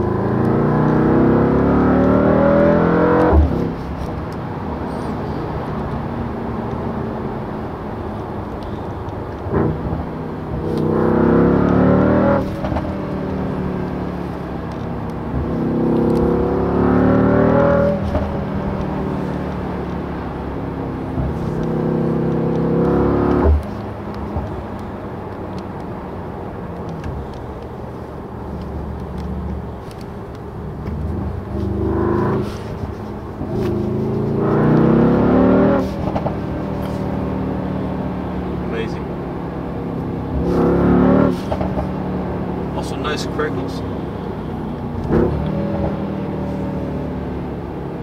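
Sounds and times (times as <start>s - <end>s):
car engine accelerating hard: 0.0s - 25.9s, 26.8s - 48.0s
exhaust crack: 40.3s - 42.0s.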